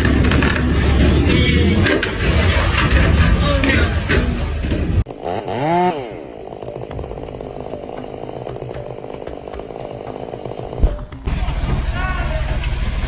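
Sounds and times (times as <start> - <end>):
chainsaw engine running: 5.1 - 10.7.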